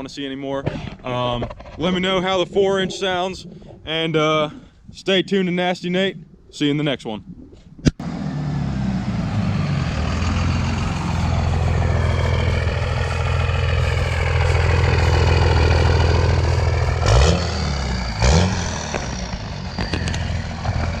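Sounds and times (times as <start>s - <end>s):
diesel engine running and revving: 8.0s - 21.0s.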